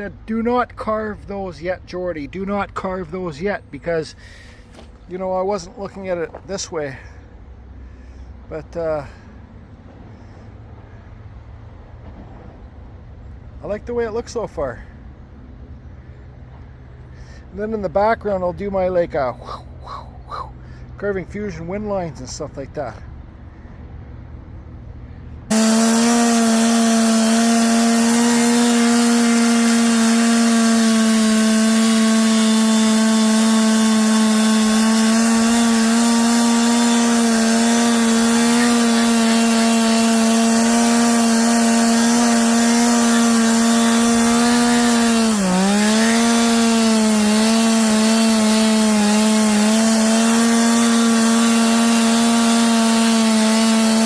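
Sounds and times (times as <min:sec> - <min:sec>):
power carving tool cutting wood: 0:25.5 - 0:54.0.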